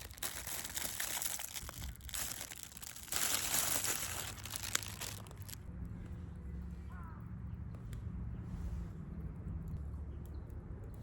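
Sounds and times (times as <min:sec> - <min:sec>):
crinkling rustling handling noise: 0:00.0 - 0:05.7.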